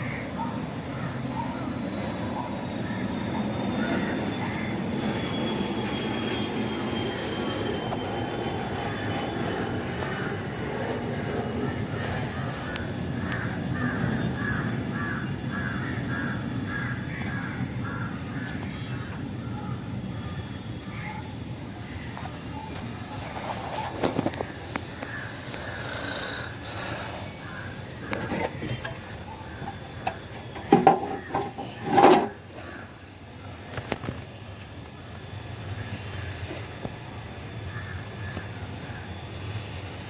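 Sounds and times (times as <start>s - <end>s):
bird cawing: 0.0s - 1.7s, 2.4s - 5.3s, 9.9s - 19.8s, 24.0s - 33.2s, 37.7s - 39.7s
low rumble of passing vehicles: 0.0s - 40.0s.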